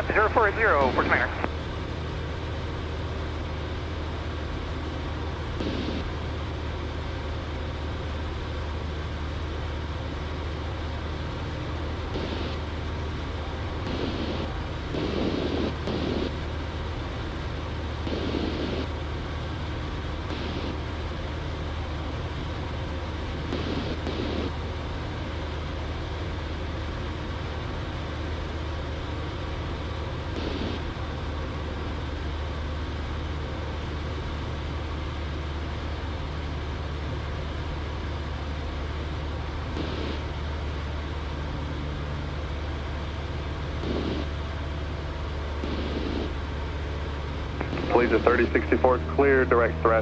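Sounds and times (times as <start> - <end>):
airplane engine and propeller droning: 0.0 - 50.0.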